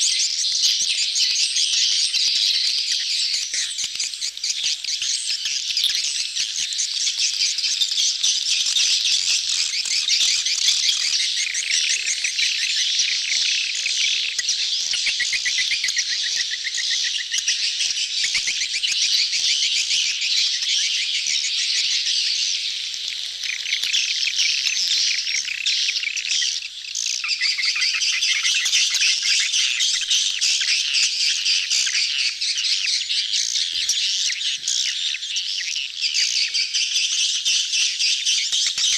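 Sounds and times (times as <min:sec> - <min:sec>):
swiftlets chattering and twittering: 0:00.0 - 0:26.3.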